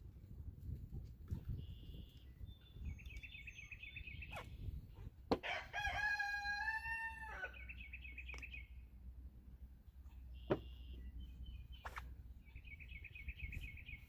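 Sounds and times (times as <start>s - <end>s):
small birds chirping: 1.3s - 5.3s, 7.3s - 9.0s, 9.9s - 14.0s
rooster crowing: 5.4s - 7.7s.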